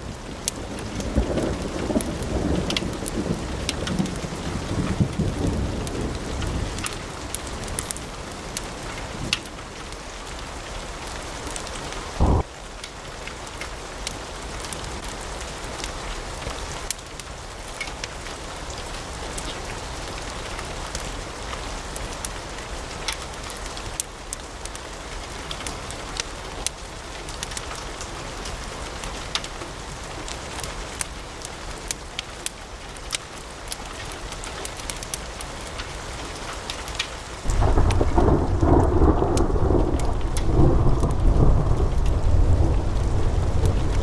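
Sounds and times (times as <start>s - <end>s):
wood fire crackling: 0.0s - 44.0s
loud low thump: 12.2s - 12.5s.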